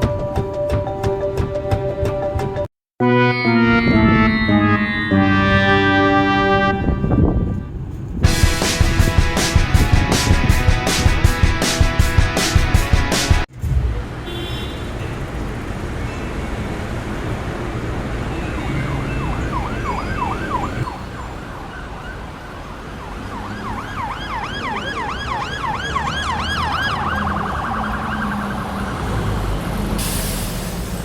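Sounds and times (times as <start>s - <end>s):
emergency siren wailing: 3.1s - 7.3s, 18.5s - 30.0s
traffic rumble: 5.6s - 12.4s, 13.4s - 31.0s.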